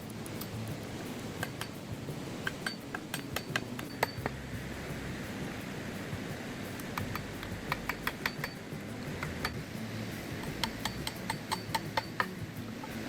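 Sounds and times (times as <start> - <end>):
low steady hum: 0.0 - 13.0
light clinks and taps: 6.0 - 13.0.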